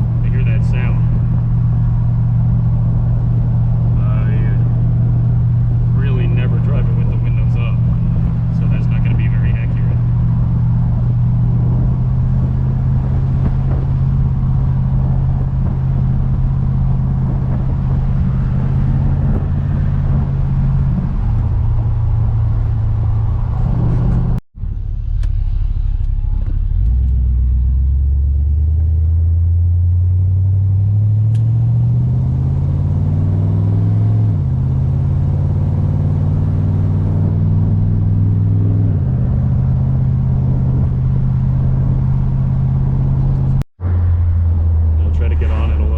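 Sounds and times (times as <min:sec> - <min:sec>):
car engine through exhaust: 0:00.0 - 0:45.9.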